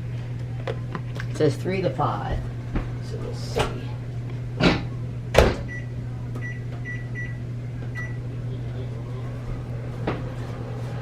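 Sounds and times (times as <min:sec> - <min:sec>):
steady low hum: 0:00.0 - 0:11.0
microwave door shutting: 0:04.6 - 0:05.8.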